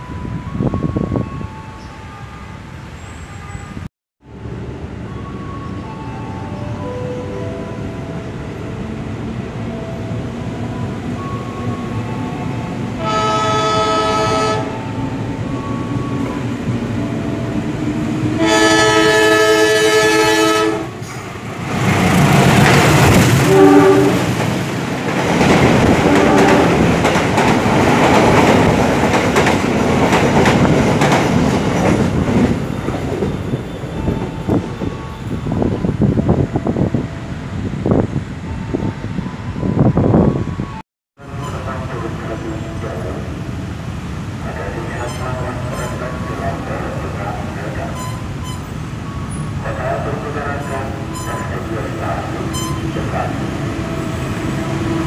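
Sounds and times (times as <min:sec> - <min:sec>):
train rumbling past: 0:00.0 - 0:55.0
locomotive horn blasts: 0:13.0 - 0:14.8, 0:18.4 - 0:21.0, 0:23.4 - 0:24.3, 0:26.1 - 0:26.8.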